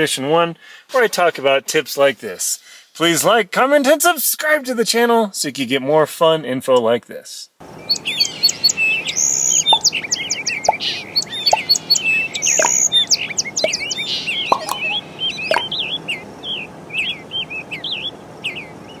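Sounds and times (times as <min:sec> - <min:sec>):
small birds chirping and calling: 0:07.7 - 0:19.0.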